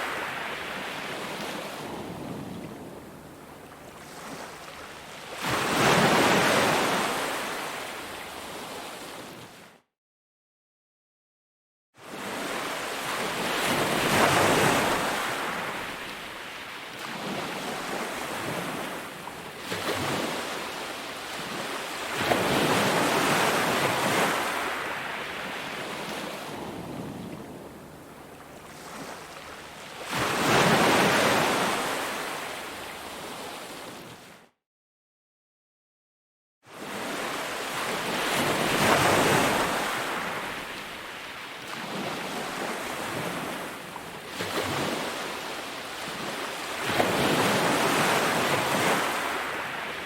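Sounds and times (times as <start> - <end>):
ocean surf breaking: 0.0 - 2.6.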